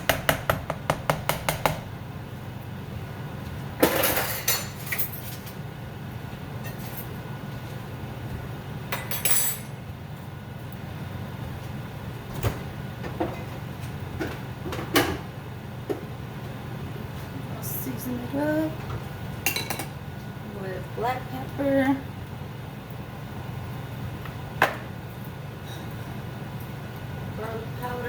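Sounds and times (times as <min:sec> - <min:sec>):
dishes and utensils clinking: 0:19.5 - 0:19.9.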